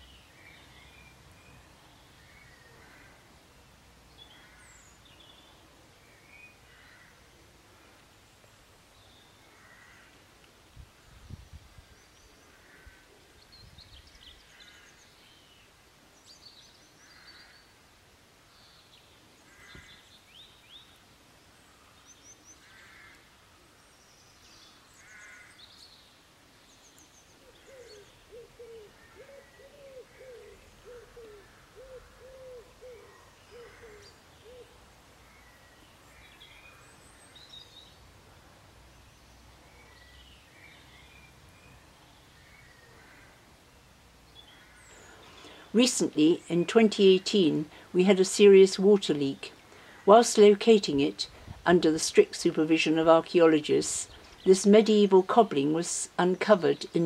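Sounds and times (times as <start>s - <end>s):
repeated low bird calls: 0.0s - 57.0s
small birds chirping: 18.4s - 38.2s, 38.8s - 51.5s, 52.2s - 57.0s.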